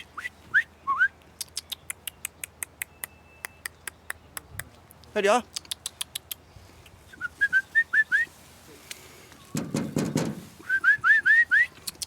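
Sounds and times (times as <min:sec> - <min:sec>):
rough rushing noise: 0:09.6 - 0:11.1
rising whistled notes: 0:10.6 - 0:11.8.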